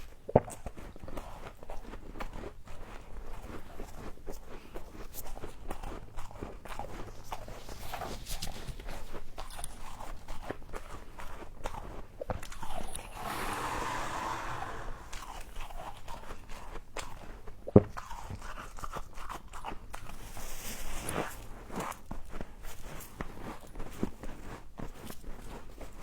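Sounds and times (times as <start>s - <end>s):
rustling hiss: 12.8s - 15.4s.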